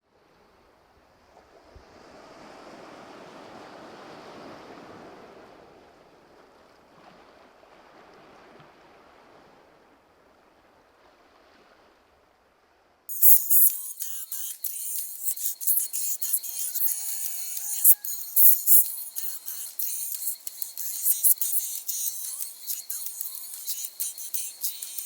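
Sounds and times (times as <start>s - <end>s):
ocean waves washing in: 1.8s - 9.6s.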